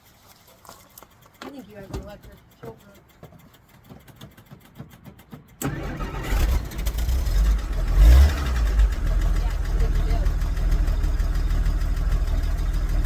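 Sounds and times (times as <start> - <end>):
rapid fuel pump ticking: 0.8 - 13.0
engine cranking and starting: 1.1 - 13.0
engine revving: 5.6 - 13.0.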